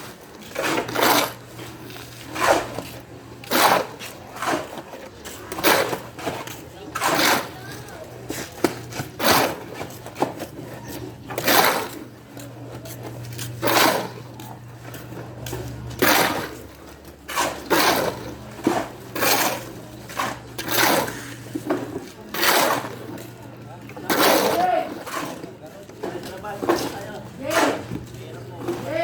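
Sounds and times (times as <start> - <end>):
low machine hum: 0.0 - 29.0
hand tool rasping strokes: 0.5 - 10.4, 12.9 - 14.2, 17.3 - 23.1, 24.1 - 25.4, 27.5 - 27.9.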